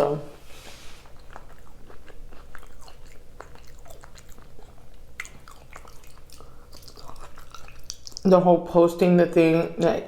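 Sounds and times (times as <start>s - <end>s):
person chewing food: 0.4s - 8.3s.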